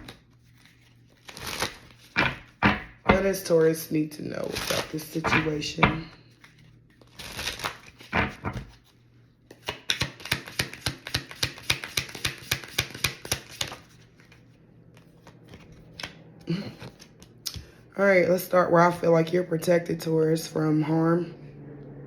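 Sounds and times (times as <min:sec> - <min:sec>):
cards being shuffled by hand: 0:00.0 - 0:03.4, 0:04.4 - 0:17.4.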